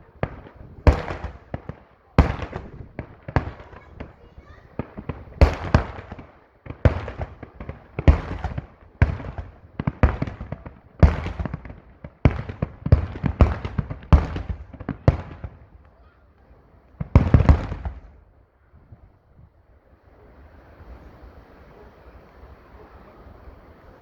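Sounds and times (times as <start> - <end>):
fireworks bangs: 0.0 - 19.1.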